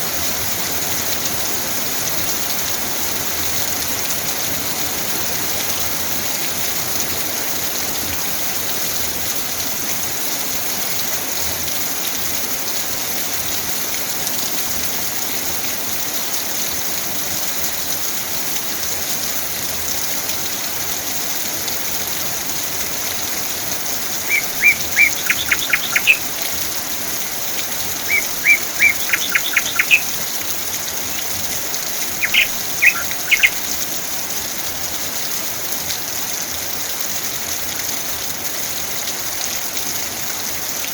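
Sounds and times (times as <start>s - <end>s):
steady rain: 0.0s - 40.9s
bird chirping: 24.2s - 26.6s, 27.6s - 33.9s.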